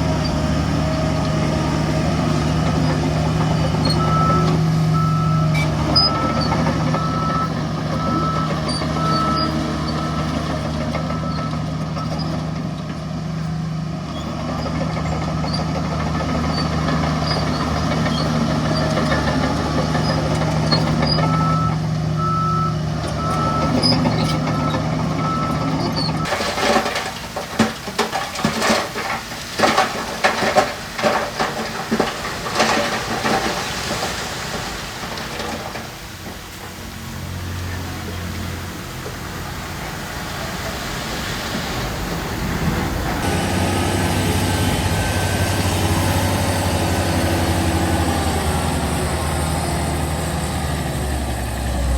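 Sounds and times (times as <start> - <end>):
diesel truck engine running: 0.0 - 51.9
reversing alarm beeping: 3.6 - 10.4, 11.0 - 12.3, 21.1 - 26.3
stones tumbling and crashing: 26.2 - 38.2.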